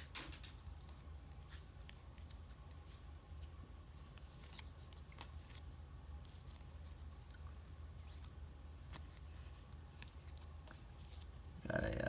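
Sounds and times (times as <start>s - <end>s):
trading cards clicking and rustling: 0.0s - 2.9s
steady low hum: 0.0s - 12.0s.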